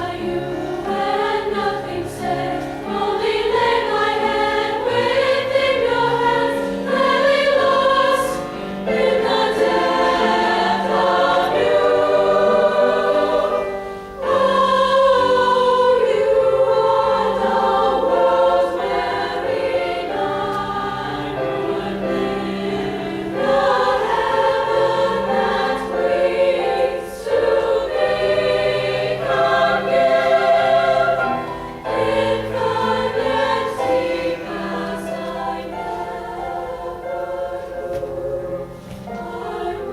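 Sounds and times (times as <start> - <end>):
piano accompaniment: 0.0 - 39.9
women's choir singing: 0.0 - 39.9.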